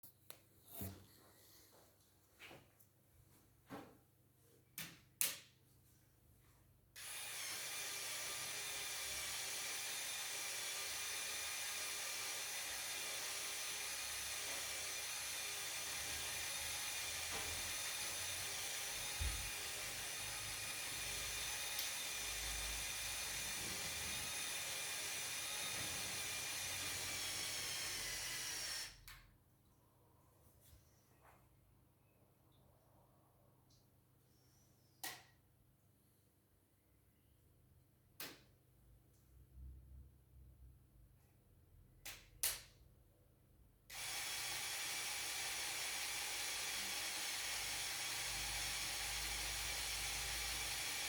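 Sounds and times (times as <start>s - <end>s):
small electric motor whining: 7.0s - 29.0s.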